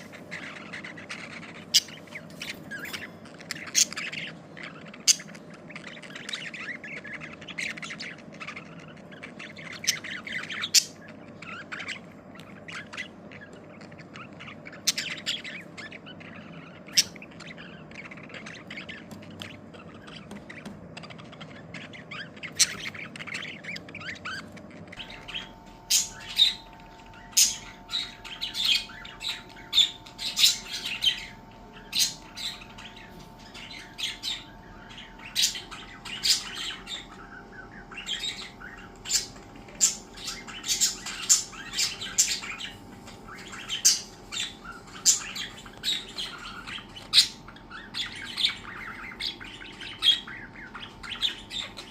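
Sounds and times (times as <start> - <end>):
budgerigars chirping and squawking: 0.0 - 51.9
faint steady hum: 0.0 - 51.9.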